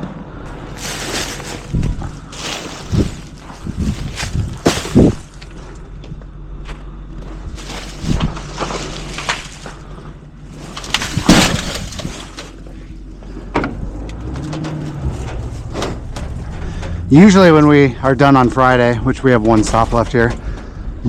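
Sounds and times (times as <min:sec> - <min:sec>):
truck engine hum: 0:00.0 - 0:21.0
trash crashing into garbage truck: 0:00.8 - 0:05.4, 0:07.6 - 0:09.8, 0:10.7 - 0:12.6.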